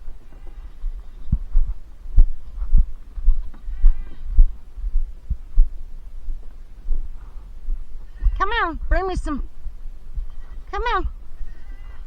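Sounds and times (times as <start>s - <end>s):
low thuds: 0.0s - 12.0s
ducks nasal calls: 3.6s - 4.4s.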